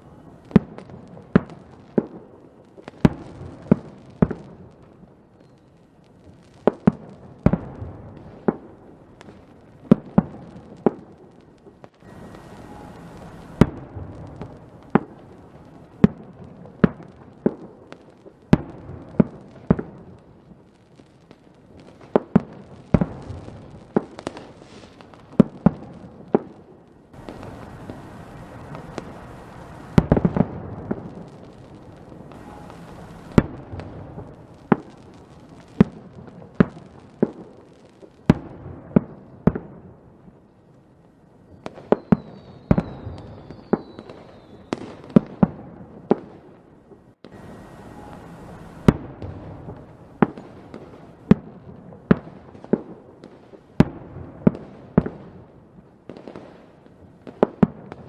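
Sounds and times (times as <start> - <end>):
fireworks bangs and pops: 0.0 - 40.4, 41.3 - 58.0
fireworks crackle: 0.0 - 58.0
firework whistling fizz: 12.0 - 16.1, 27.2 - 37.0, 41.5 - 45.2, 47.2 - 51.3.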